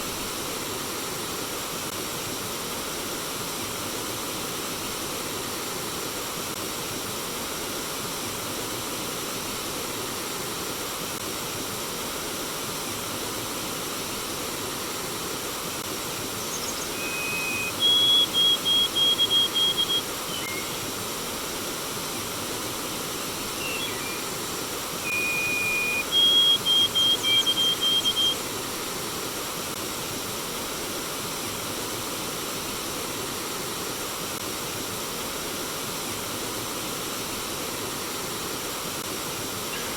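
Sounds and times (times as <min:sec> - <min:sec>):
stream water rushing: 0:08.5 - 0:39.9
songbird singing: 0:16.3 - 0:20.9, 0:23.3 - 0:28.8, 0:39.7 - 0:39.9.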